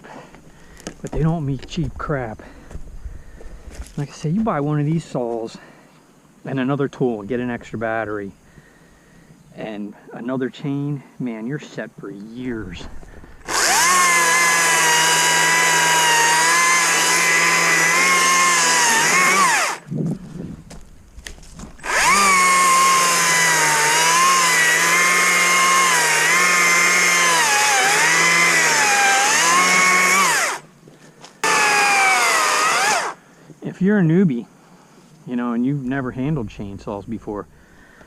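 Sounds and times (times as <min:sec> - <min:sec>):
battery chainsaw cutting wood: 0:13.4 - 0:19.9, 0:21.8 - 0:30.7, 0:31.4 - 0:33.2.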